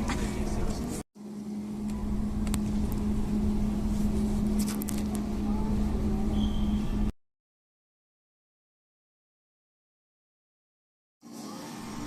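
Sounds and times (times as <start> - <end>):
vehicle drone: 0.0 - 7.1.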